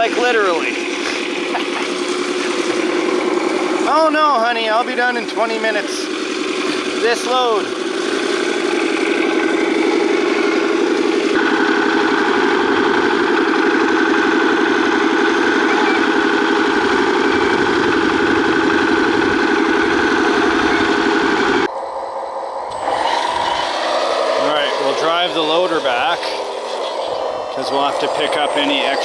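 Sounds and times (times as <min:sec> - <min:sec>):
high whine: 0:00.0 - 0:29.0
hydraulic pump motor humming: 0:00.0 - 0:29.0.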